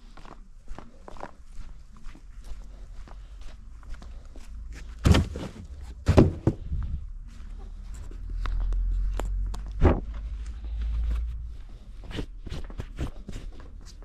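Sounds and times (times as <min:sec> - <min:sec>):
footsteps in a house: 0:00.0 - 0:14.0
heavy thuds and knocks: 0:05.0 - 0:06.9.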